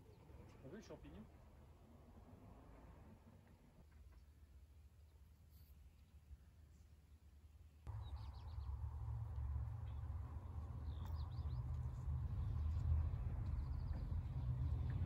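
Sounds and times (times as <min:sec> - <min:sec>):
small birds chirping: 0:07.9 - 0:15.0
steady low rumble: 0:07.9 - 0:15.0.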